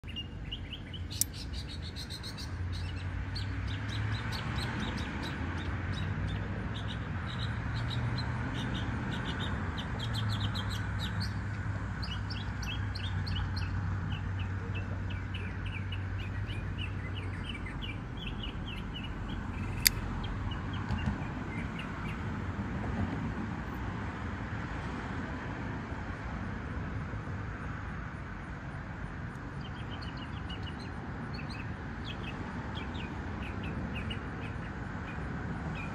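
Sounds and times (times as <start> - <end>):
small birds chirping: 0.0 - 11.4, 12.0 - 22.2, 29.4 - 35.9
sharp click: 1.1 - 1.4, 19.6 - 20.1.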